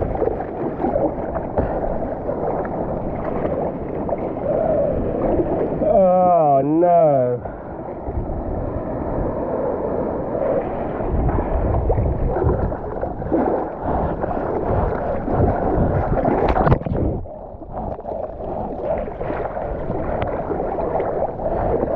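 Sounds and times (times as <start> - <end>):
muffled water sloshing: 0.0 - 21.9
sharp water splash: 14.6 - 17.3.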